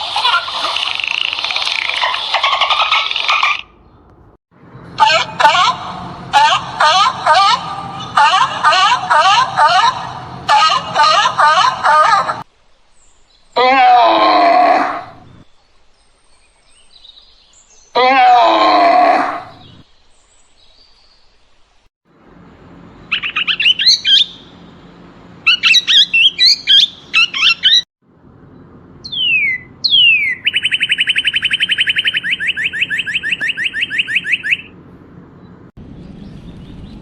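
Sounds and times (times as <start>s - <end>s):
loud animal call: 5.0s - 12.5s, 13.6s - 15.4s, 18.0s - 19.8s
songbird singing: 7.3s - 21.6s, 23.0s - 24.8s, 25.4s - 37.0s.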